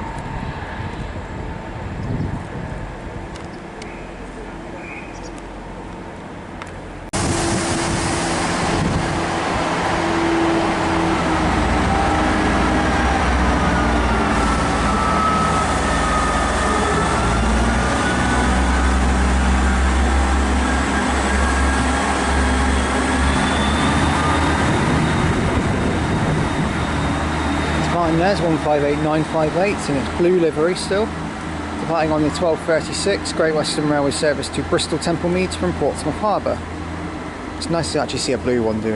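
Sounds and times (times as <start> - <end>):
diesel train engines pulling away: 0.0 - 38.9
high wavering whines: 7.2 - 34.4.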